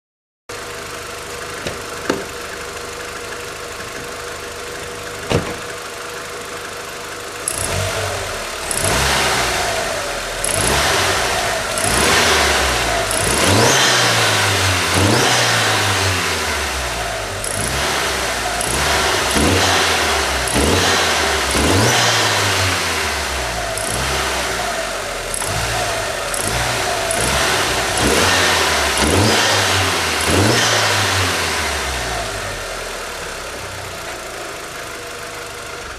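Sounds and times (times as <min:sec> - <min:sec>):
car engine revving: 0:07.4 - 0:34.9.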